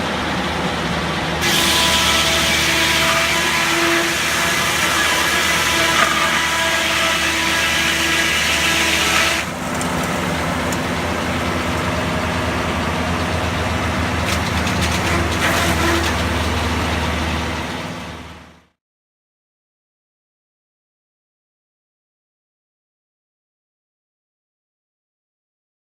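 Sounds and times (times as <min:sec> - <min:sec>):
engine hum: 0:00.0 - 0:18.8
saw rasping through wood: 0:01.4 - 0:10.4, 0:14.2 - 0:17.0.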